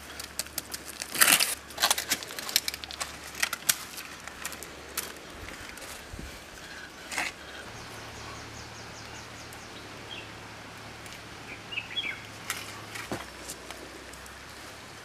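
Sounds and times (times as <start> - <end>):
steady background noise: 0.0 - 15.0
bird chirps: 6.7 - 10.4, 11.4 - 12.4.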